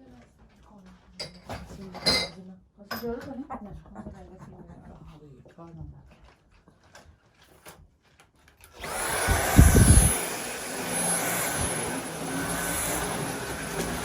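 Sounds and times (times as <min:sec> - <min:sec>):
vacuum cleaner whining: 0:08.7 - 0:14.0.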